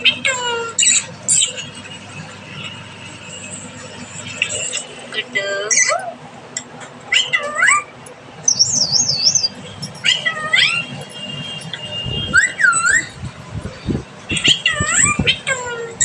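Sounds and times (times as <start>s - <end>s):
parrot calling and whistling: 7.1s - 11.0s, 12.3s - 13.2s.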